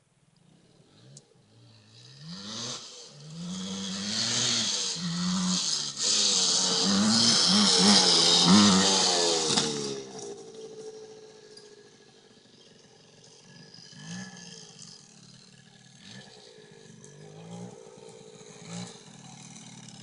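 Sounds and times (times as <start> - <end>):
dirt bike engine revving: 0.5 - 20.0.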